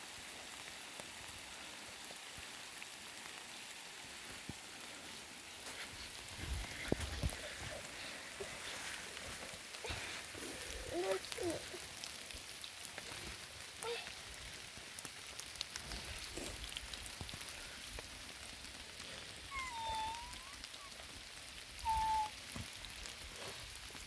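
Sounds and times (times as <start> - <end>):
rain falling: 0.0 - 24.0
raindrops pattering on surface: 0.0 - 24.0
high-pitched calls: 19.5 - 20.9, 21.8 - 22.3.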